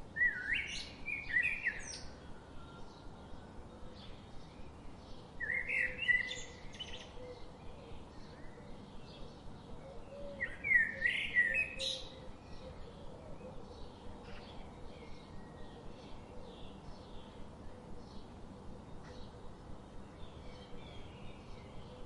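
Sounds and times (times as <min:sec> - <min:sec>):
bird warbling song: 0:00.2 - 0:02.2, 0:03.9 - 0:19.4.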